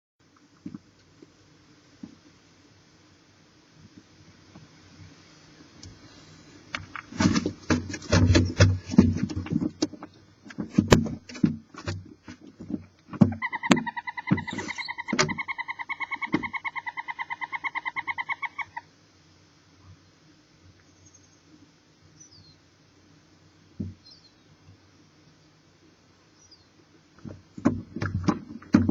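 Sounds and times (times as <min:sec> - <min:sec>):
owls scuffling in nest box: 0:06.8 - 0:18.7
owl chittering call: 0:13.3 - 0:18.9.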